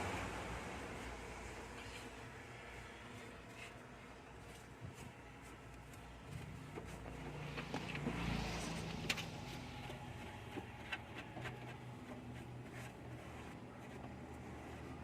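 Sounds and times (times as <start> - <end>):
van engine starting and idling: 6.6 - 12.2.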